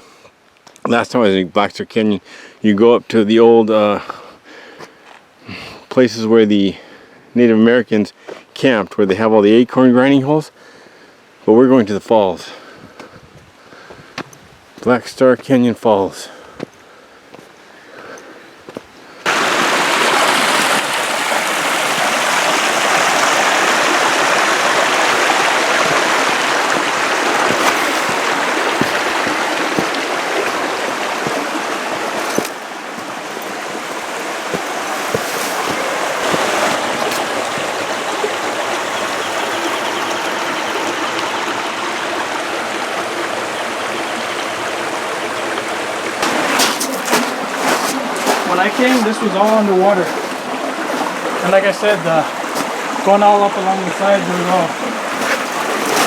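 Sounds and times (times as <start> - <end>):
creek water rushing: 16.2 - 56.0.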